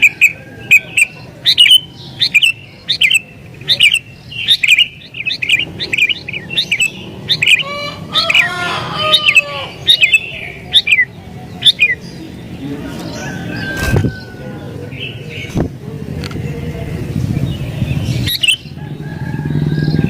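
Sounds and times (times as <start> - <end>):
bulbul chirping: 0.0 - 12.0, 18.2 - 18.7
bird harsh chattering: 0.0 - 12.2, 17.9 - 18.8.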